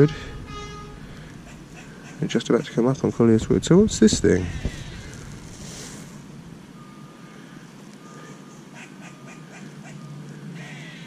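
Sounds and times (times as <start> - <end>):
vehicle reversing alarm beeping: 0.0 - 2.0, 3.0 - 10.6
low background rumble: 0.0 - 7.8.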